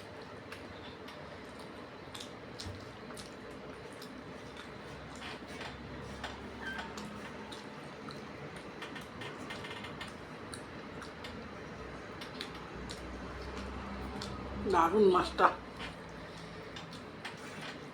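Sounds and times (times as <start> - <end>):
person eating wet food: 0.1 - 8.7, 10.1 - 14.6.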